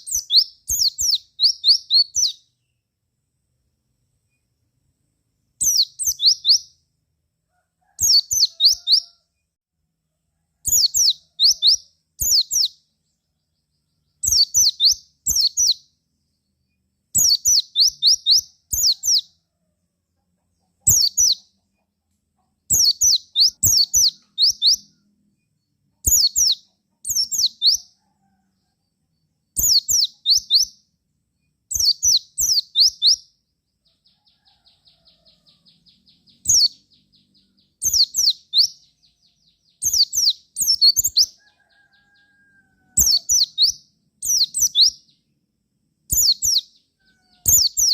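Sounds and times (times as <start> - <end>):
bird chirping high descending: 0.0 - 2.7, 5.6 - 6.8, 8.0 - 9.2, 10.7 - 12.9, 13.5 - 15.9, 17.2 - 19.4, 20.8 - 21.5, 22.7 - 25.0, 26.0 - 27.9, 29.5 - 30.8, 31.7 - 33.2, 34.0 - 42.4, 43.0 - 45.2, 46.1 - 47.9.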